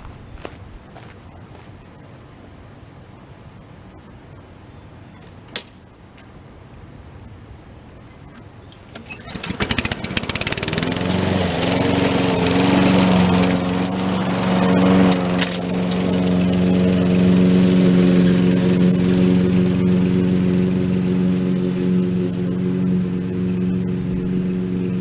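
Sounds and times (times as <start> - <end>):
lawn mower engine starting: 8.8 - 25.0.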